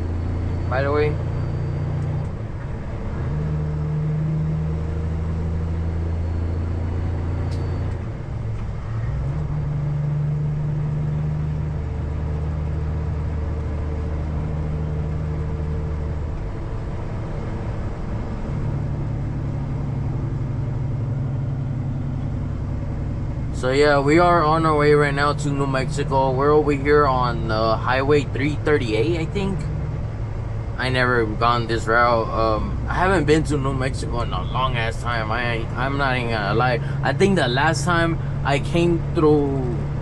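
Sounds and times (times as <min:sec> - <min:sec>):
truck diesel engine droning: 0:00.0 - 0:40.0.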